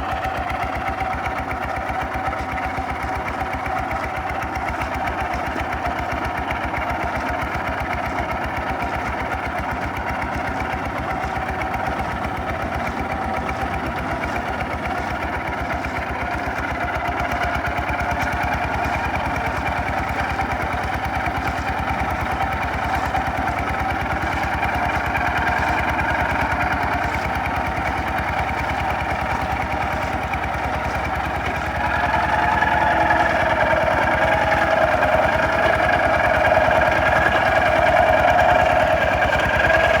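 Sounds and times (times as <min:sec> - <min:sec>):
diesel engine chugging: 0:00.0 - 0:40.0.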